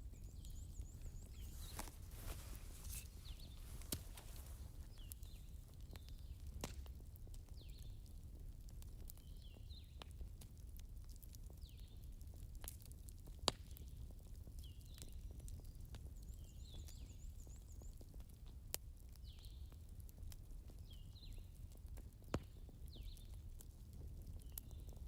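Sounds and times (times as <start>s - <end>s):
fire low rumble: 0.0s - 16.2s
wood popping and ticking: 0.2s - 11.5s.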